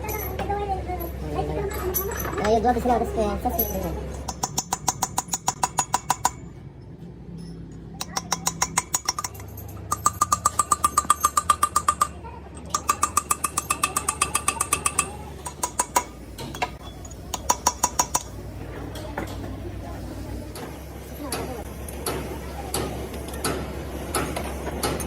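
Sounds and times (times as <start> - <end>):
rapid metallic tapping: 8.0 - 16.2.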